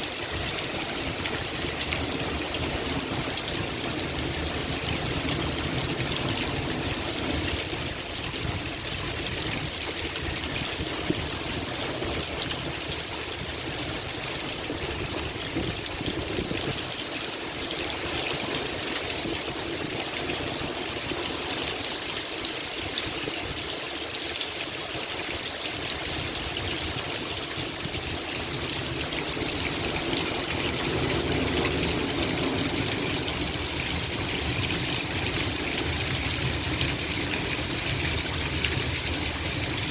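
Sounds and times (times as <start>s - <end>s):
heavy rain pouring: 0.0s - 39.9s
water running and trickling: 0.0s - 39.9s
strong wind rumble: 26.4s - 39.9s.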